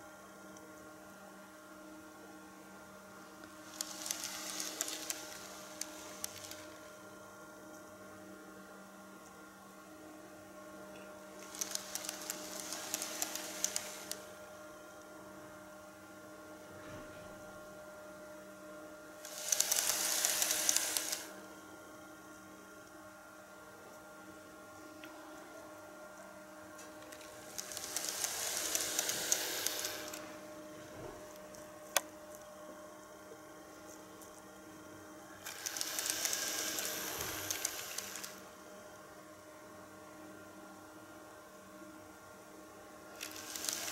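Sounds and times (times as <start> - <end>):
steady electrical hum: 0.0 - 43.9
model train running: 3.7 - 6.8, 11.4 - 14.2, 19.2 - 21.3, 27.5 - 30.3, 35.4 - 38.4, 43.2 - 43.9.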